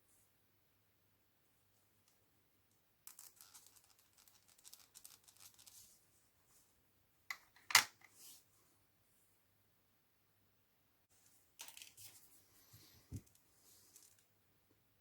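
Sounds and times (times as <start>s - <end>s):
plastic parts clicking and scratching: 3.1s - 5.8s, 11.6s - 12.1s.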